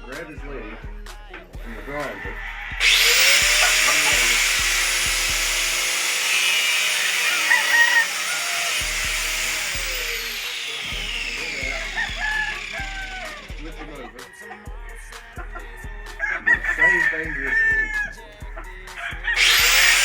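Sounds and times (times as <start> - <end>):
small electric grinder running: 2.8 - 14.0, 19.4 - 20.0.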